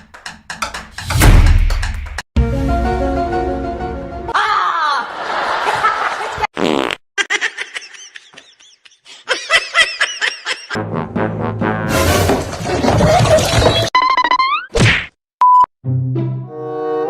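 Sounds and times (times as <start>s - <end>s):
people laughing: 4.5s - 6.5s, 7.2s - 10.8s.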